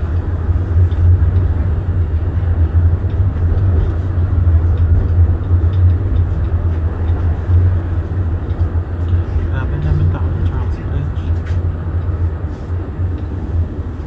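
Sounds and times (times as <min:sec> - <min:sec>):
tram low rumble: 0:00.0 - 0:14.0.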